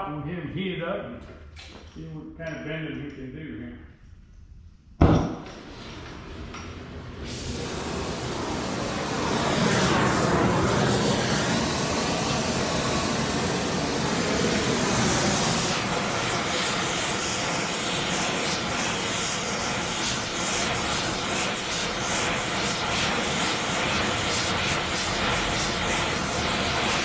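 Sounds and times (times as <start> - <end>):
gas torch flame roaring: 5.0 - 27.0.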